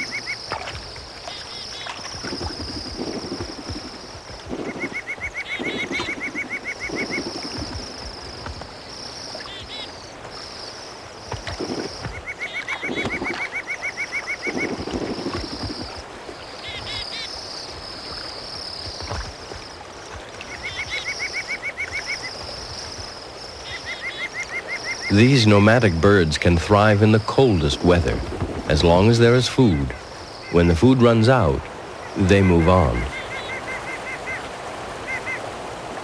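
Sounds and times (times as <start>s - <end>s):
water splashing: 0.0s - 36.0s
bird trilling: 1.4s - 8.0s.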